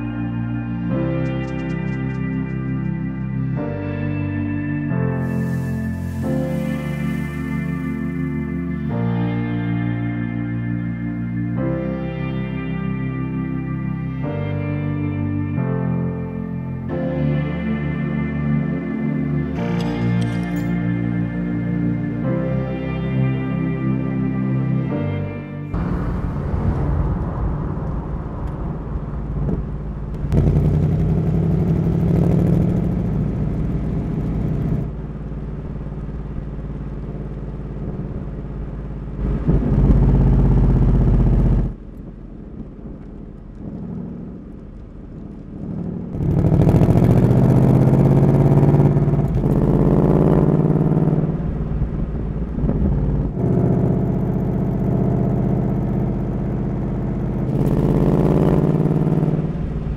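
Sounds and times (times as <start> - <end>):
car engine revving: 25.7 - 59.9.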